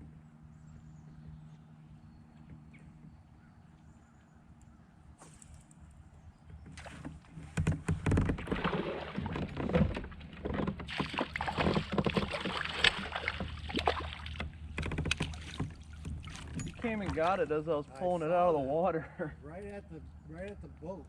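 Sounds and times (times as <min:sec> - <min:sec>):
knocks against kayak side: 0:10.7 - 0:17.2
fish splashing at surface: 0:10.9 - 0:14.4.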